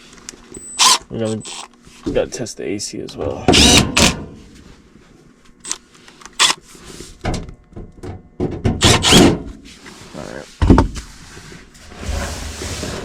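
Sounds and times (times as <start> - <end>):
sheet metal scraping and clanking: 11.8 - 13.0.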